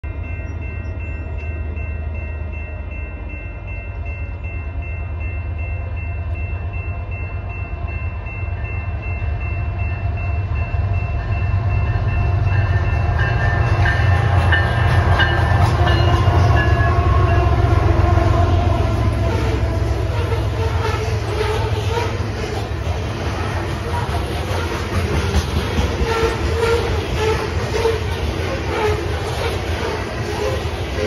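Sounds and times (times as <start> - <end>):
diesel locomotive rumble: 0.0 - 31.0
train horn chord: 13.6 - 22.5
wheels clattering over rails: 19.2 - 31.0.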